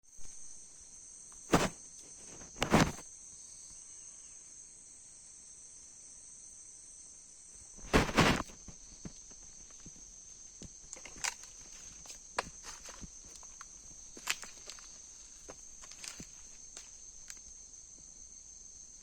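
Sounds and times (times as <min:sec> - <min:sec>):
high insect drone: 0:00.1 - 0:19.0
loud scuffs or knocks: 0:07.9 - 0:08.6.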